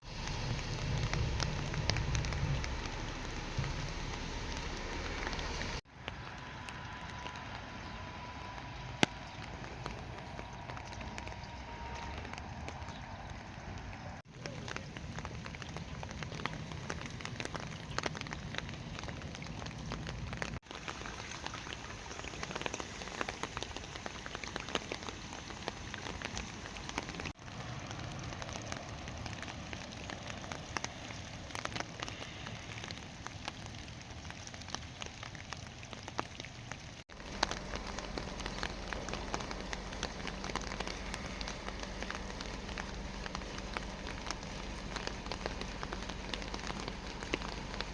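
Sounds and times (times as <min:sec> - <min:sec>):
rain pattering: 0:00.0 - 0:47.9.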